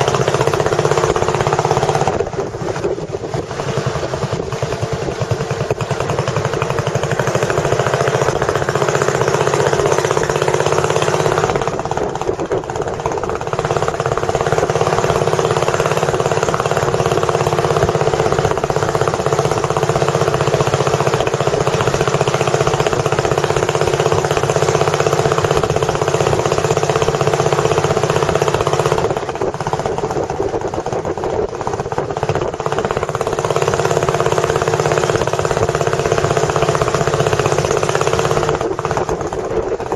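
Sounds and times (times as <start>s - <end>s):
boat engine chugging: 0.0s - 39.9s.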